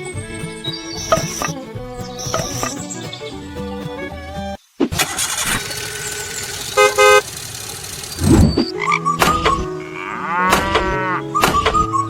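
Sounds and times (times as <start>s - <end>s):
vehicle horn honking: 6.7s - 7.4s.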